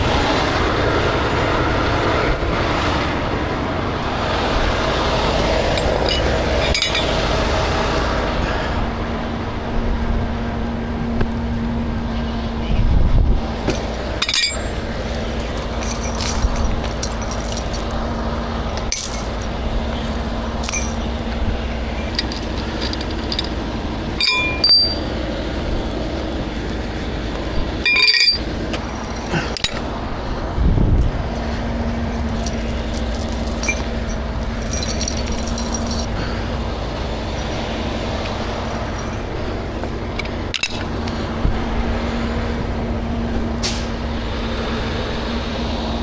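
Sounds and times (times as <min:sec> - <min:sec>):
truck engine idling: 0:00.0 - 0:46.0
metal clinks and rattles: 0:05.4 - 0:07.2, 0:13.6 - 0:25.3, 0:27.8 - 0:29.9, 0:32.0 - 0:36.1, 0:37.4 - 0:40.9.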